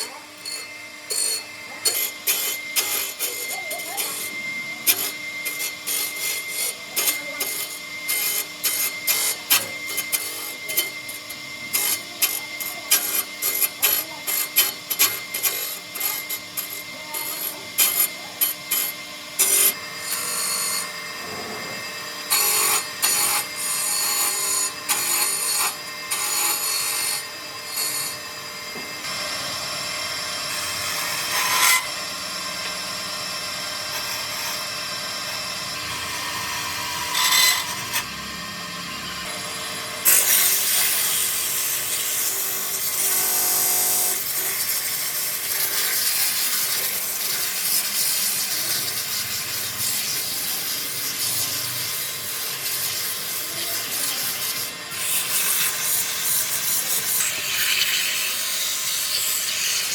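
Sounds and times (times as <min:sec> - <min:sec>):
tools scraping wood: 0:00.0 - 0:28.2.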